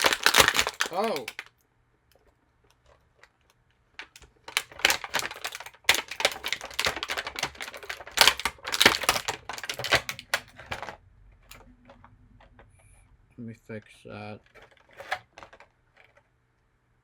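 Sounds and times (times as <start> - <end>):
plastic packaging crackling: 0.0 - 1.6, 2.6 - 12.6, 14.4 - 16.1.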